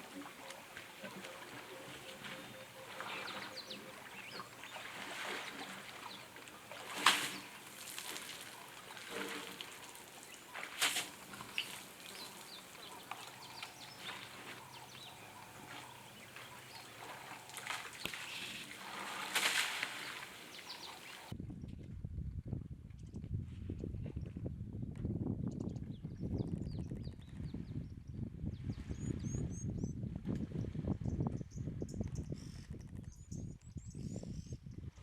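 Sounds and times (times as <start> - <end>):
water splashes: 0.0 - 21.3
bird chirps: 0.1 - 21.3.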